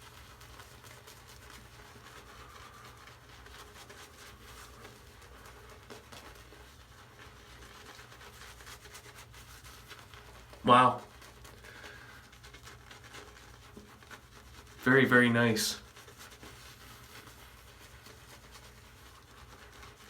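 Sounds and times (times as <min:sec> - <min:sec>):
shaving brush swishing lather: 0:00.0 - 0:20.0.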